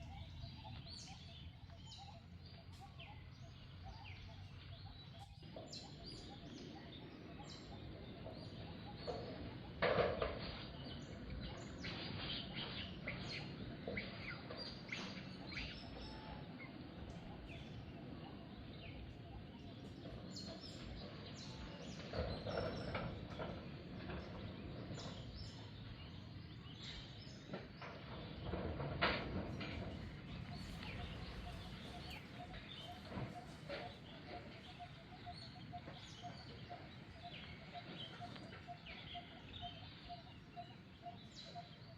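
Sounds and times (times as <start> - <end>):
animal chirps and calls: 30.0 - 41.9.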